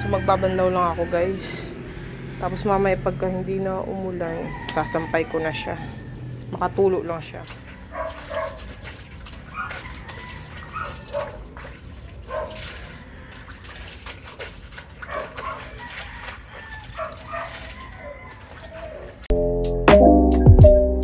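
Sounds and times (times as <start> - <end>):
water splashing: 0.0 - 19.3
dog yipping and whimpering: 7.7 - 11.5, 15.1 - 19.3.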